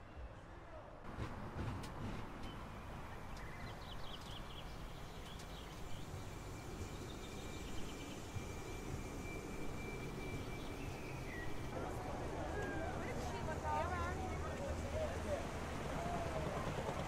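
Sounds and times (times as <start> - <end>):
faint birds chirping: 2.4 - 11.8.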